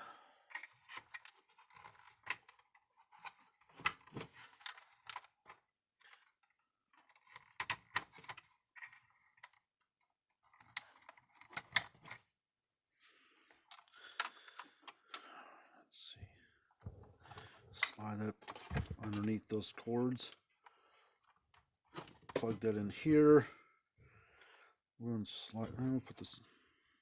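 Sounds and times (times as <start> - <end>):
wire leads and connectors clicking: 17.4 - 19.6.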